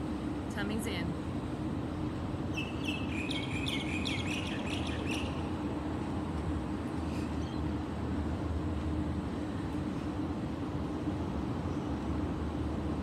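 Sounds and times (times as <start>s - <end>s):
small bird chirping: 2.5s - 5.5s.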